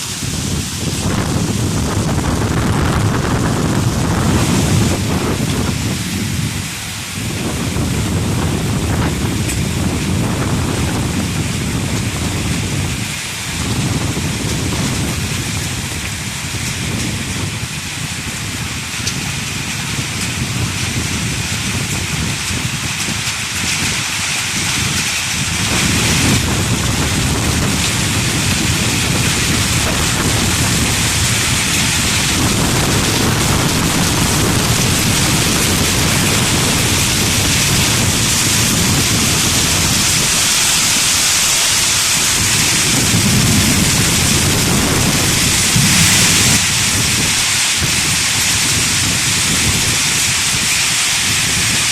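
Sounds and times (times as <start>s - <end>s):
heavy rain and hail: 0.0s - 51.9s
strong wind: 0.0s - 51.9s
low rumble: 43.1s - 47.5s.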